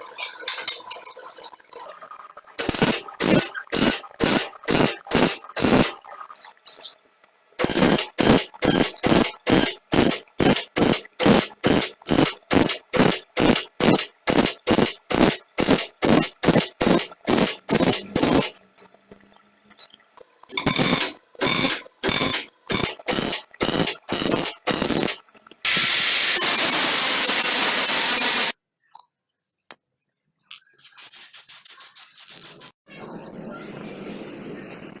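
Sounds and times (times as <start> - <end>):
crackling welding arc bursts: 2.6 - 6.2, 7.6 - 18.6, 20.5 - 28.6, 30.8 - 32.8.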